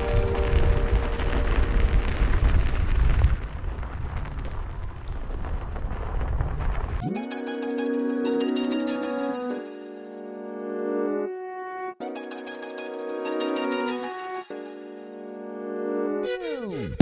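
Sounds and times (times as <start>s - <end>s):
wind buffeting microphone: 0.0s - 7.0s
music: 7.0s - 17.0s.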